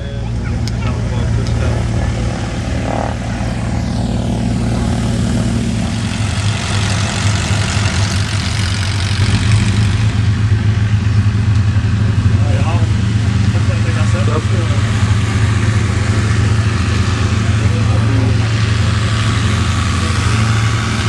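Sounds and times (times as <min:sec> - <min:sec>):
propeller aircraft engine drone: 0:00.0 - 0:21.0.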